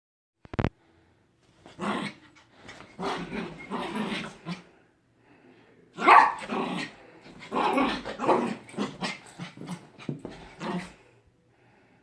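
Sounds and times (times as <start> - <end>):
dog barking and growling: 1.6 - 4.7, 6.0 - 11.0.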